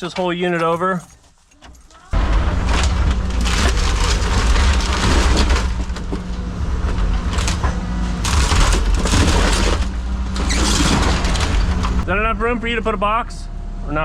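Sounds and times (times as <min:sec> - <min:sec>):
walls cracking and crushing: 0:00.0 - 0:12.0
excavator diesel engine working hard: 0:02.2 - 0:14.0.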